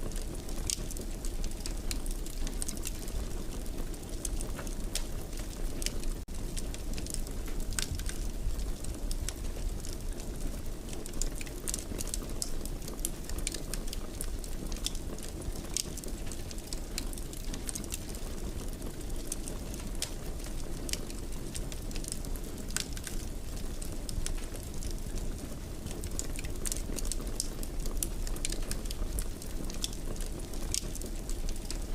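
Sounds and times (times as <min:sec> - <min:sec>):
fire popping and snapping: 0:00.0 - 0:31.9
wood fire crackling: 0:00.0 - 0:31.9.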